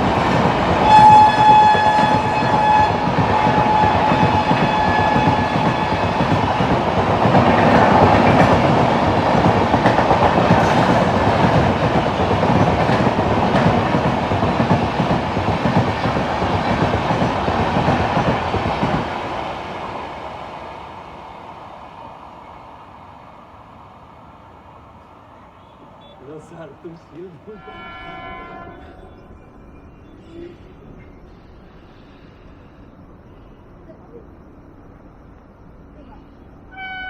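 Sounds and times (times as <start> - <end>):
wheels clacking over rail joints: 0.0 - 19.5
train wheels rushing on rails: 0.0 - 28.7
train horn: 0.8 - 6.7, 25.5 - 29.3, 36.7 - 37.0.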